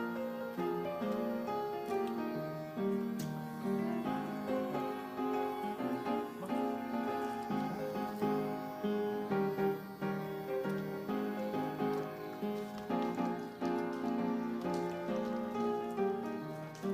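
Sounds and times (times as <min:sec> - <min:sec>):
instrumental music with keyboard: 0:00.0 - 0:16.9.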